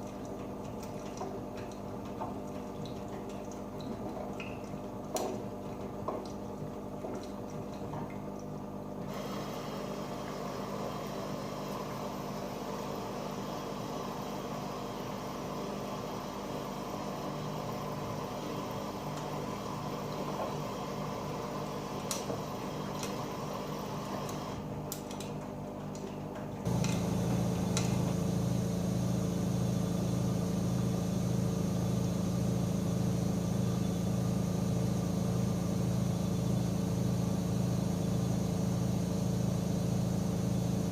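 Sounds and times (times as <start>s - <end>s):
water sloshing in washing machine: 0.0s - 40.9s
loud steady motor hum: 26.7s - 40.9s.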